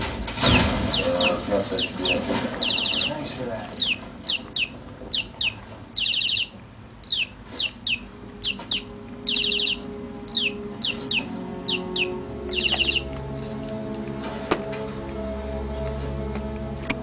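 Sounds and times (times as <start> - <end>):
budgerigar rattling trills: 0.3 - 13.1
budgerigar chirping: 0.4 - 13.1.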